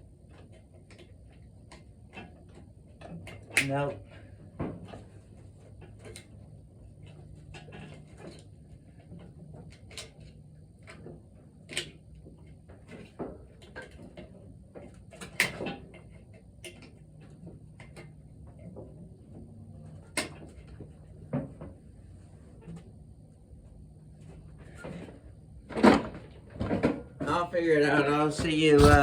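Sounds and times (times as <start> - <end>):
steady low hum: 27.3 - 29.0.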